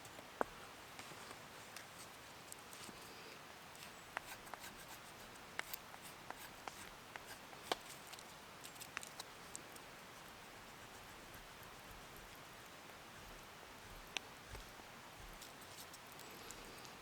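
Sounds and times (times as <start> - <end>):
faint steady hiss: 0.0 - 17.0
small clicks and ticks: 3.7 - 17.0.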